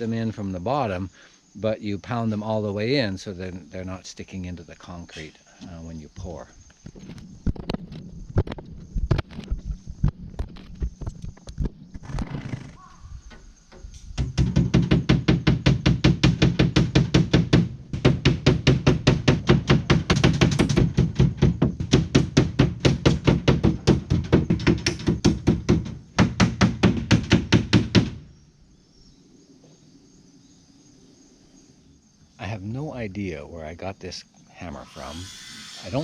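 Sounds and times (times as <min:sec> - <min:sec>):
rapid hammering knocks: 0:13.3 - 0:28.3.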